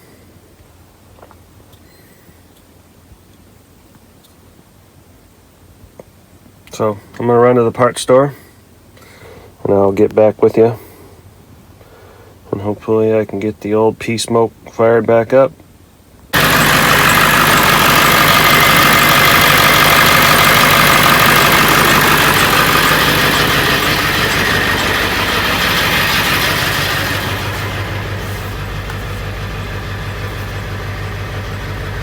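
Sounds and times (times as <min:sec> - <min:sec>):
diesel engine idling: 0:16.4 - 0:32.0.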